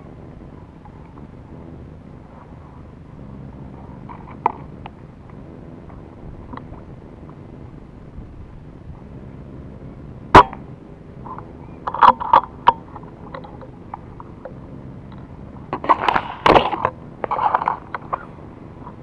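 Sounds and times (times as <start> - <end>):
air rifle shot: 10.3 - 10.7.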